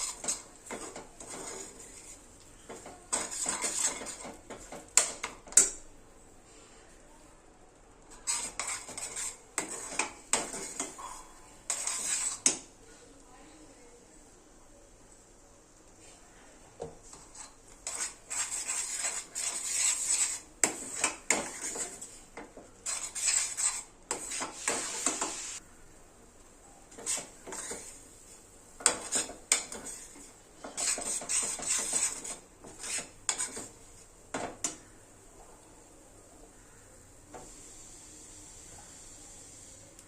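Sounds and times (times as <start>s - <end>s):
spoon scraping a cooking pan: 0.0s - 5.9s, 8.0s - 12.8s, 16.8s - 25.6s, 26.8s - 35.0s.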